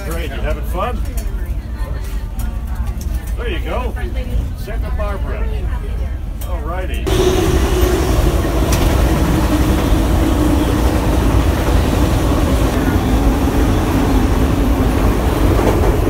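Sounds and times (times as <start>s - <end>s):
train wheels rumbling on rails: 5.8s - 16.0s.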